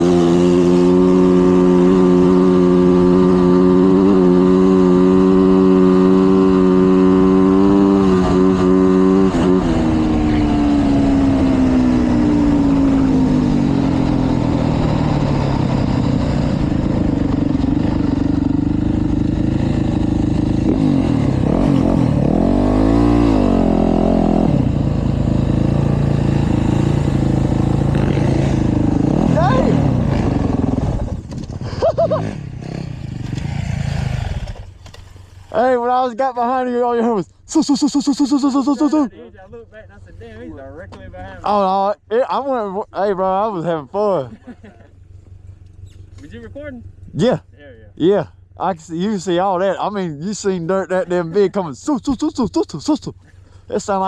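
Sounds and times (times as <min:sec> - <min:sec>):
dirt bike engine revving: 0:00.0 - 0:35.8, 0:37.5 - 0:39.1, 0:48.6 - 0:54.0.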